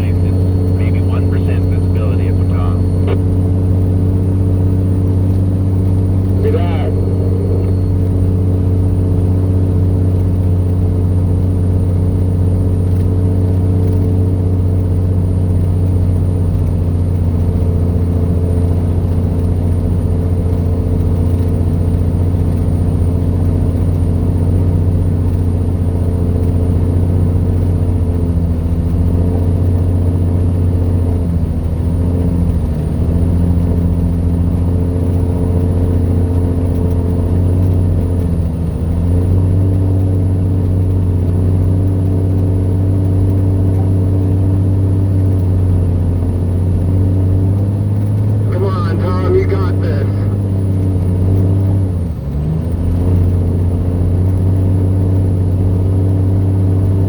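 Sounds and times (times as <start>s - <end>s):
faint high whine: 0.0s - 3.6s, 5.8s - 9.1s
vehicle engine and road noise: 0.0s - 57.0s.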